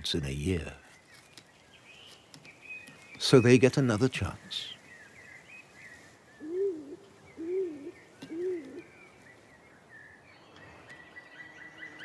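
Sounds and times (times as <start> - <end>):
dove cooing: 6.4 - 8.9.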